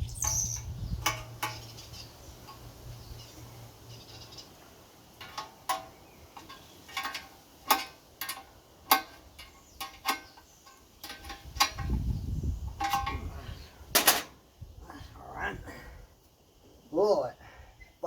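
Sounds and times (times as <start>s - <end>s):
metallic clinks and taps: 5.2s - 11.9s.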